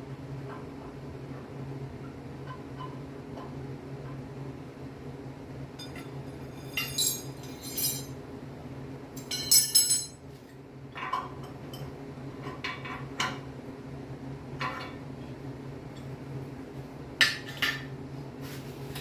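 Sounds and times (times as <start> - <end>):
steady low hum: 4.2 - 10.2
metal objects clinking: 5.8 - 8.1, 9.2 - 10.2.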